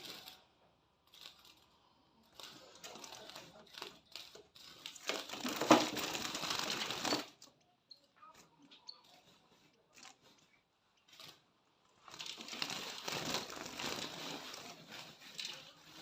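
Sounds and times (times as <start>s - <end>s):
rustling and crinkling handling: 1.0s - 16.0s.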